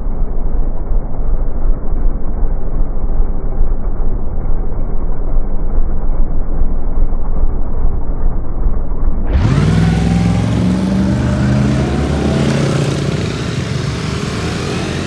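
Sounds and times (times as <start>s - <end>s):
motorcycle engine running: 4.2s - 15.0s.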